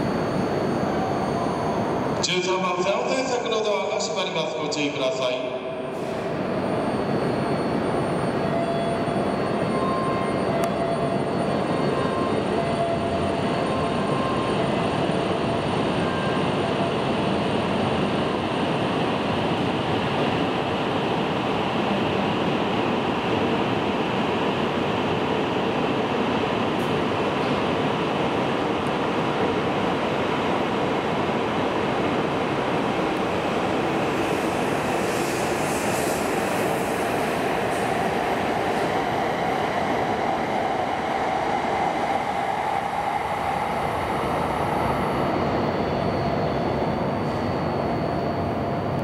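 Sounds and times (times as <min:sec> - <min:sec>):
train rushing past: 0:29.1 - 0:49.0
faint rising whine: 0:40.1 - 0:49.0.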